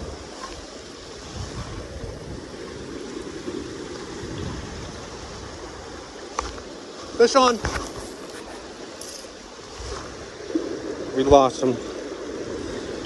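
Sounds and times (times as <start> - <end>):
wind buffeting microphone: 0.0 - 6.4
river water rushing: 2.5 - 11.2.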